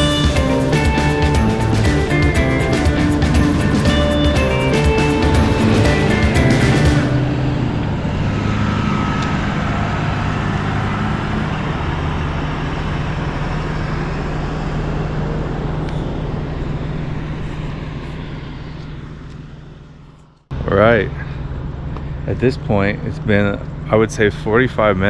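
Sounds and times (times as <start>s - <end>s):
large vehicle engine idling: 0.0s - 19.3s.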